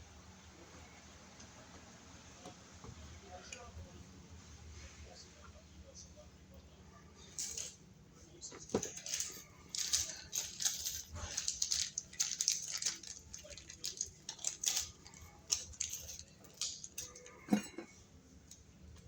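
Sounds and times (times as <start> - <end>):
small metal hardware clinking: 8.7 - 18.0.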